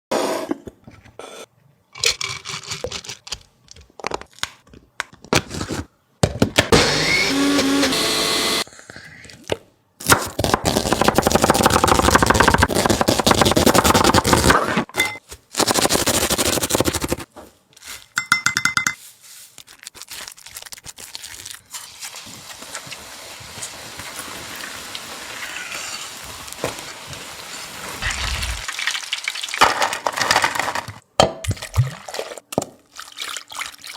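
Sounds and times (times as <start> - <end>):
utensils clinking and knocking: 18.2 - 19.0
steady frying hiss: 21.7 - 29.5.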